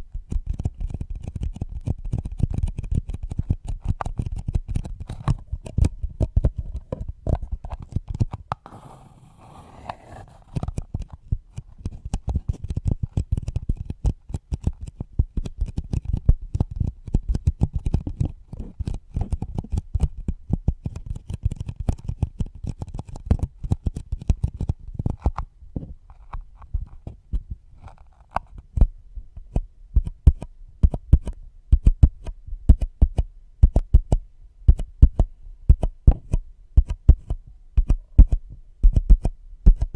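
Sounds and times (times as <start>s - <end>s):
tapping and thumping on microphone: 1.8s - 8.6s, 28.3s - 39.9s.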